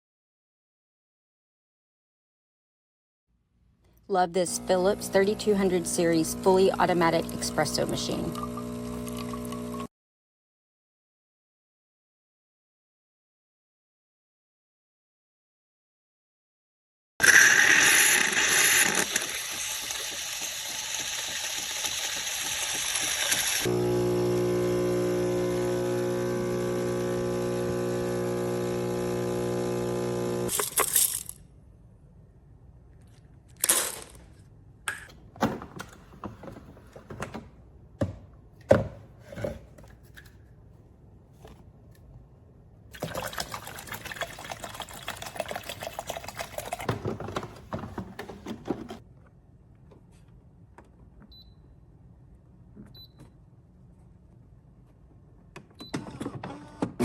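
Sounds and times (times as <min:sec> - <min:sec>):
liquid pouring: 0:08.3 - 0:09.9, 0:17.8 - 0:23.7, 0:42.9 - 0:48.0.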